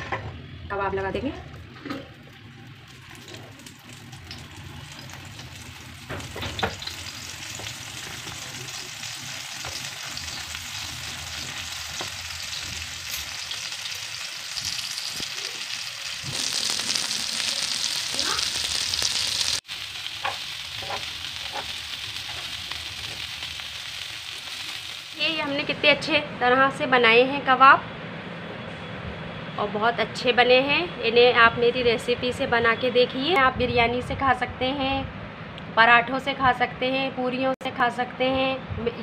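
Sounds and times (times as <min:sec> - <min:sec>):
patties sizzling in hot oil: 0:01.6 - 0:25.7.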